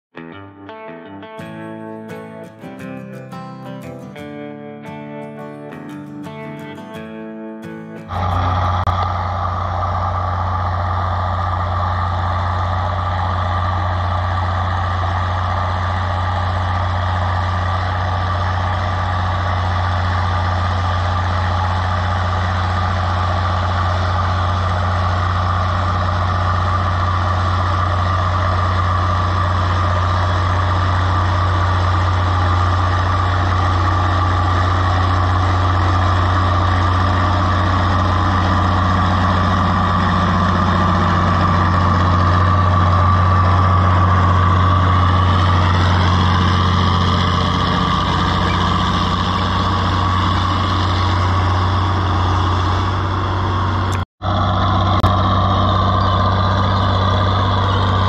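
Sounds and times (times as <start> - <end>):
tractor engine droning: 1.4 - 58.0.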